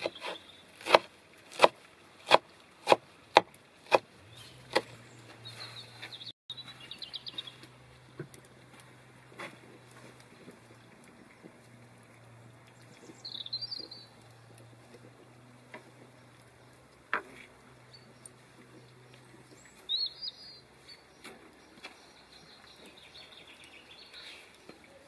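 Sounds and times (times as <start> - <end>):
small bird chirping: 4.3 - 7.7, 12.7 - 14.7, 17.9 - 25.0.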